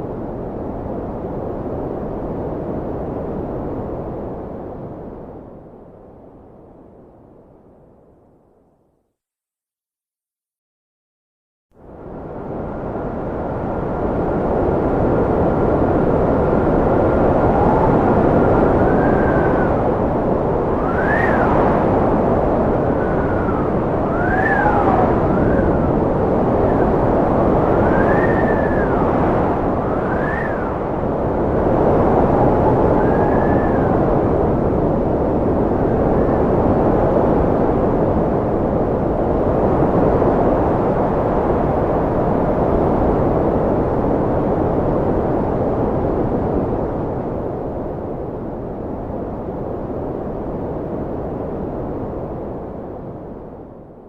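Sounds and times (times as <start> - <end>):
strong wind rushing: 0.0 - 6.6, 11.8 - 54.0
thin wind whistle: 17.0 - 37.2
faint high whistle: 20.8 - 21.5.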